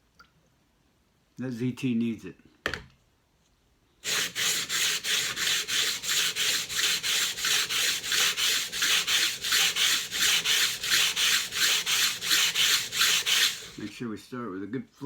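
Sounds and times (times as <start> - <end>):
knife rubbing on a whetstone: 4.0 - 14.0.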